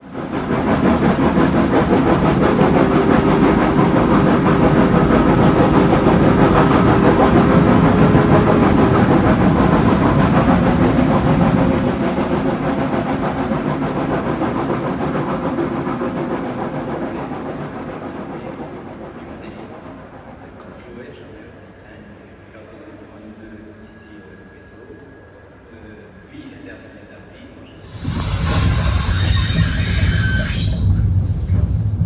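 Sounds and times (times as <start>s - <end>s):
train clattering: 0.1s - 18.1s, 27.8s - 32.0s.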